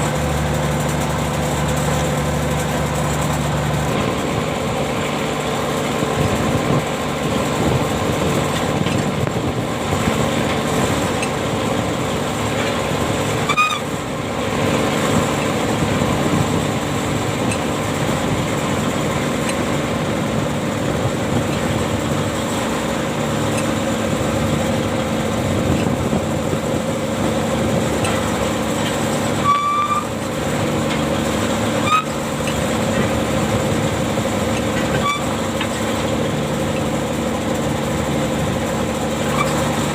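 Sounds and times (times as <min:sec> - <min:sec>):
anchor machinery engine hum: 0:00.0 - 0:39.9
short high squeaks: 0:13.4 - 0:14.0, 0:29.3 - 0:30.2, 0:31.7 - 0:32.3, 0:34.6 - 0:35.4, 0:39.3 - 0:39.6.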